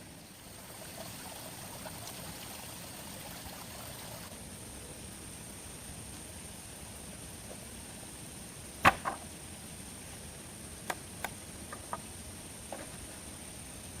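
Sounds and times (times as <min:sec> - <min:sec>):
faint steady hiss: 0:00.0 - 0:14.0
sharp knock: 0:08.8 - 0:09.2.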